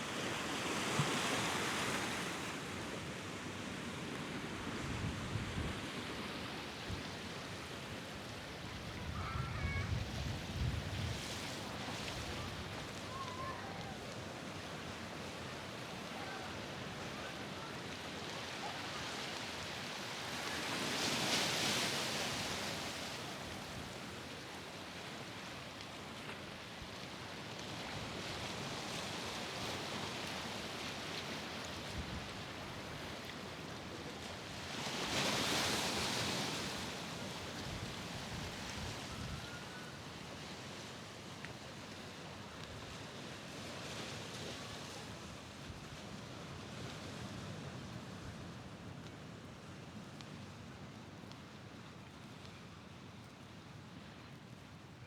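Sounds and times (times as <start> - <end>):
sea waves washing on shore: 0.0 - 51.6
wind gusts on microphone: 8.7 - 12.8.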